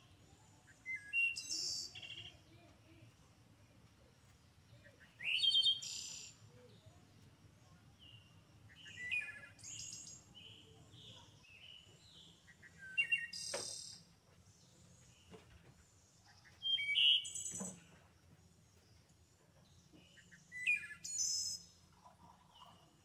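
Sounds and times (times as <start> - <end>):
songbird chirps and trills: 0.0 - 23.0
faint low hum: 1.8 - 5.2, 6.3 - 12.6.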